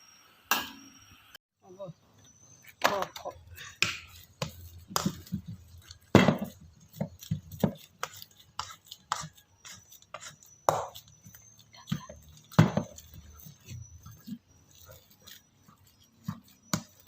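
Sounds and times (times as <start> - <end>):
knife chopping on cutting board: 6.1 - 11.0, 11.9 - 13.0.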